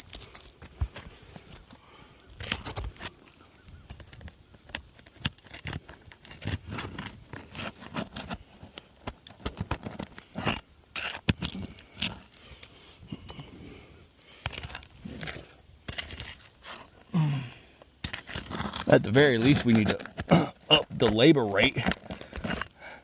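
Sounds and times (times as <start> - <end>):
shingles scraping and clicking: 2.2 - 12.3, 14.4 - 17.1, 18.0 - 22.8.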